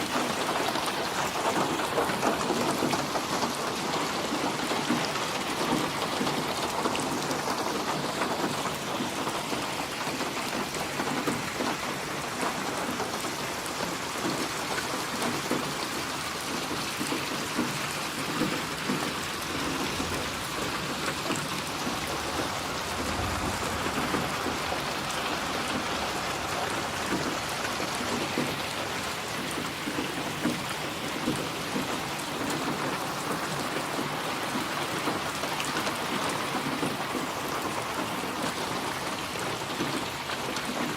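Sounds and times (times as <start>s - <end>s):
steady rain falling: 0.0s - 40.9s
distant thunder rumble: 18.8s - 31.4s.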